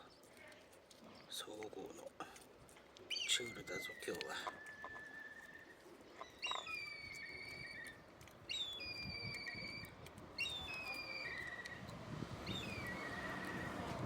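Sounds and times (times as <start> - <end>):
bird whistling call: 6.4 - 11.8, 12.5 - 13.9.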